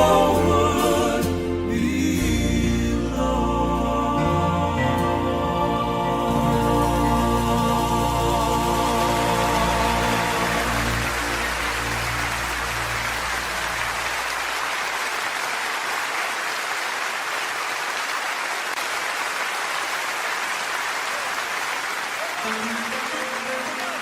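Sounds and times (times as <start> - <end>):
vocal quartet held chord: 0.0 - 14.1
audience applauding: 8.2 - 24.0.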